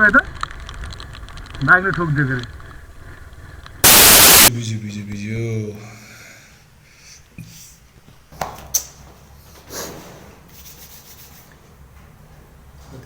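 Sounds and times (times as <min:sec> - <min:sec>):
sharp clicks: 0:03.6 - 0:04.5.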